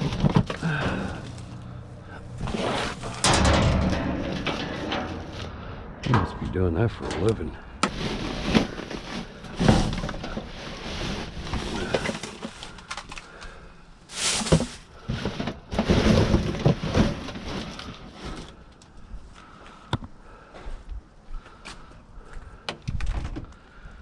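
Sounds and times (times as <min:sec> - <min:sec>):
junk being rummaged through: 0:00.0 - 0:18.8.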